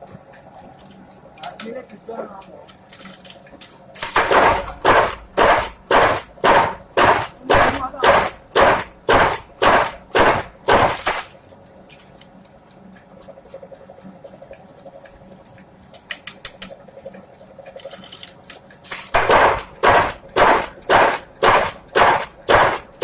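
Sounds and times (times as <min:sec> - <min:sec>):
light clattering and ticks: 0:00.0 - 0:04.0, 0:11.3 - 0:19.2.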